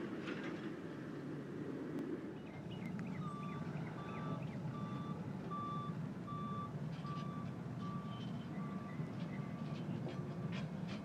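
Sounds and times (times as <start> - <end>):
freight train rumbling: 0.0 - 11.0
electronic beeping alarm: 3.2 - 8.1.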